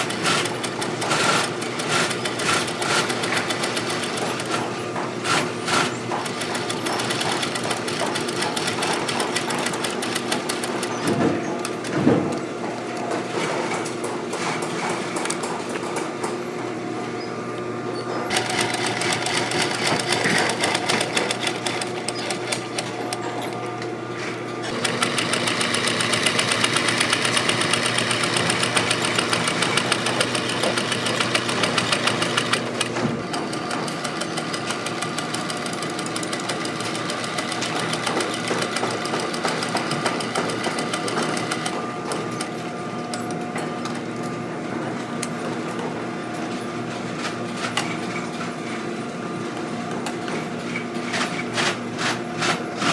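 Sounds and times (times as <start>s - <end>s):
industrial sewing machine stitching: 0.0s - 11.9s, 18.3s - 23.4s, 24.6s - 42.5s.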